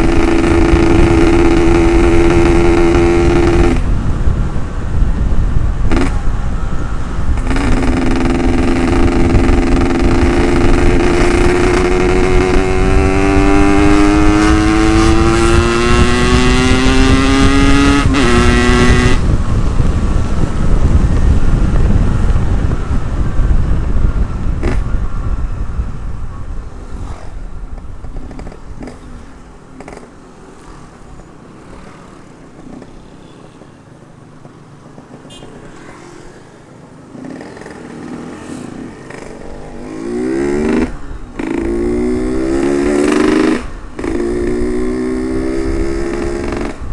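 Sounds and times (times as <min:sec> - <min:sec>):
motorcycle engine accelerating: 0:00.0 - 0:04.1, 0:07.4 - 0:25.2, 0:37.2 - 0:46.9
wind rush on microphone: 0:00.0 - 0:33.1, 0:38.7 - 0:46.9.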